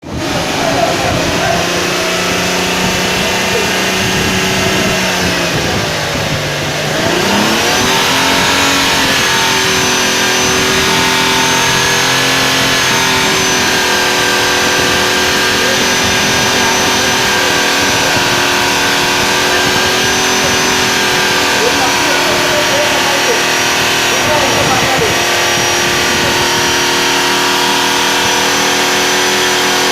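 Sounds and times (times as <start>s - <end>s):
vehicle engine running: 0.0s - 29.9s.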